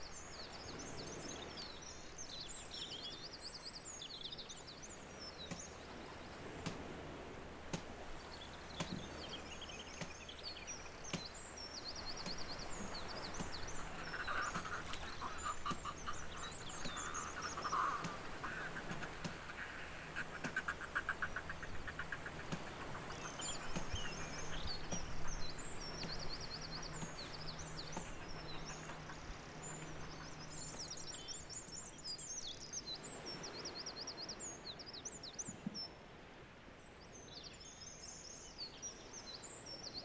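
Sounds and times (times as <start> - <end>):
small birds singing: 0.0 - 36.0, 36.8 - 40.0
lower raspy bird call: 14.0 - 24.6.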